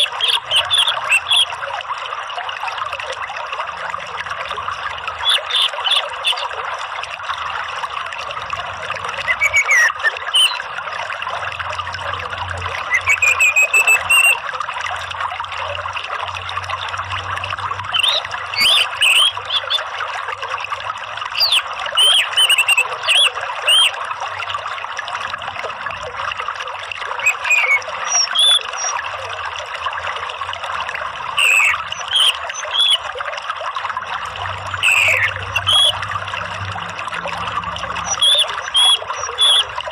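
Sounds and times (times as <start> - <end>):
thrush chirps and whistled calls: 0.0 - 1.5, 5.2 - 6.5, 9.1 - 10.7, 12.8 - 14.4, 17.9 - 19.8, 21.4 - 23.9, 27.2 - 29.0, 31.4 - 33.1, 34.8 - 36.0, 37.9 - 39.8
trickling water: 0.0 - 39.9.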